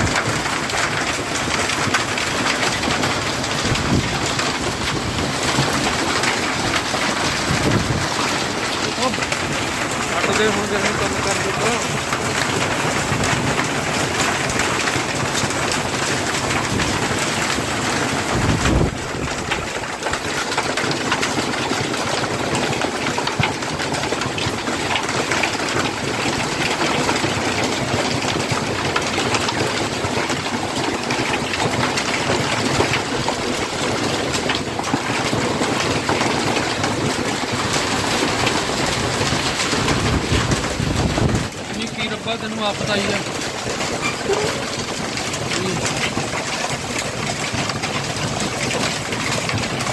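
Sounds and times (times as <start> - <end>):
hail and rain pelting: 0.0 - 49.9
wind gust buffeting microphone: 3.5 - 8.3, 18.3 - 19.6, 39.3 - 41.6.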